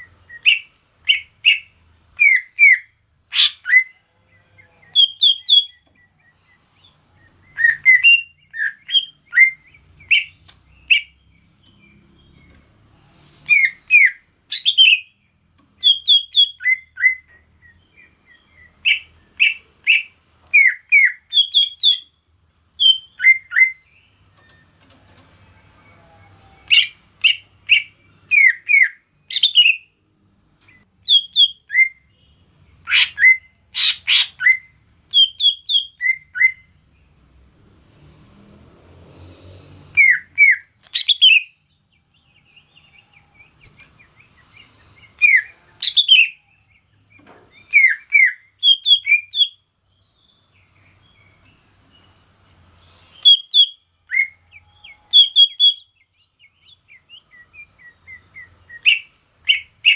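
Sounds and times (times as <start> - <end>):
bird singing whistled notes: 0.0 - 12.6, 13.4 - 15.2, 15.8 - 22.2, 22.8 - 24.8, 26.0 - 29.9, 30.7 - 36.8, 39.9 - 52.2, 52.8 - 59.9.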